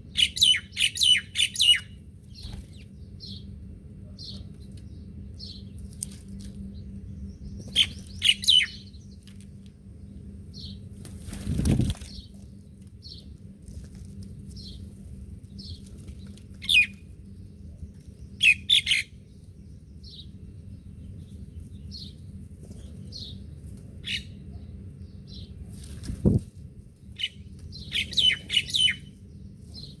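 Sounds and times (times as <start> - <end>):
birds chirping: 0.0 - 9.4, 14.4 - 25.6, 27.0 - 30.0
steady low rumble: 0.0 - 30.0.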